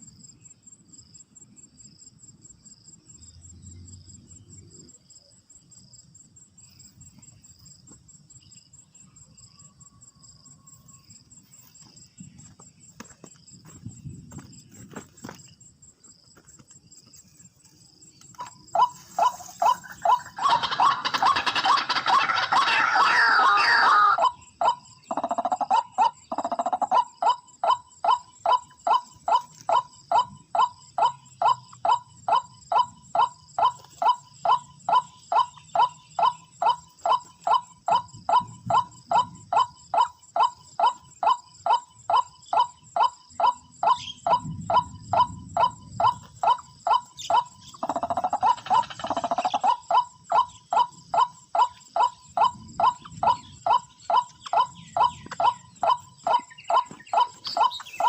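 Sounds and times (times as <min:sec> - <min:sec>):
waterhen call: 0:18.4 - 0:30.3, 0:31.0 - 0:58.0.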